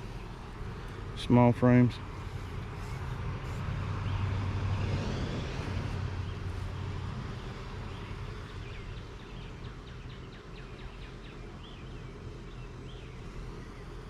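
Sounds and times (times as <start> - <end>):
honeybees humming: 0.0 - 14.0
bird chirping: 7.8 - 14.0.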